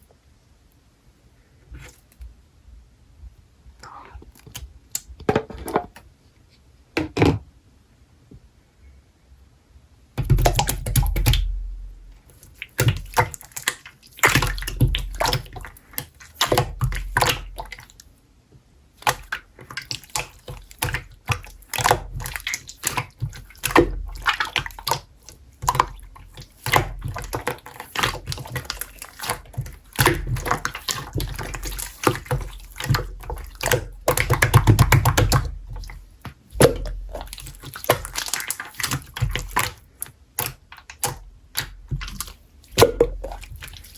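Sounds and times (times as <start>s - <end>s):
slime squelching: 10.2s - 18.2s, 18.9s - 43.9s.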